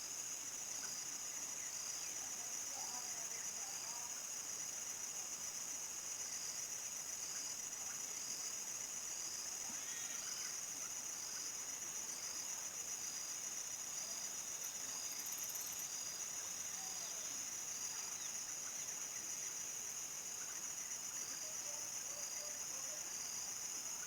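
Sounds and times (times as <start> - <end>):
cricket chirps: 0.0 - 24.0
crickets trilling: 8.6 - 24.0.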